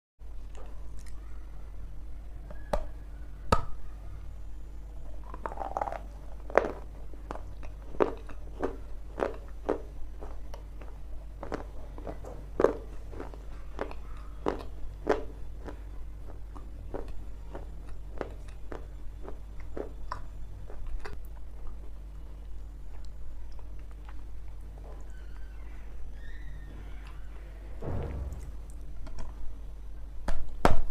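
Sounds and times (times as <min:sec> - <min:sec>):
low hum: 0:00.2 - 0:30.6
crunchy chewing: 0:05.0 - 0:25.7.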